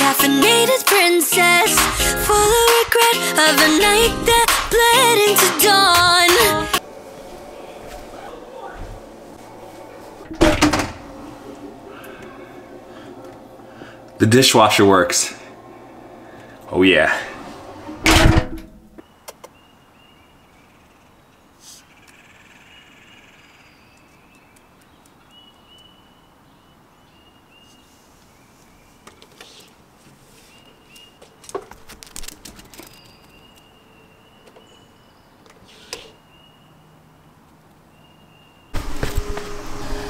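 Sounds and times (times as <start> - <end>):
birds calling: 1.6 - 17.0.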